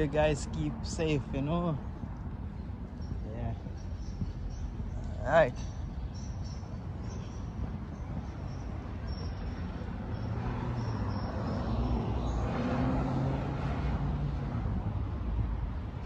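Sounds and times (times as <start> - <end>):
city street traffic: 0.0 - 16.0
vehicle engine passing close: 10.2 - 14.8.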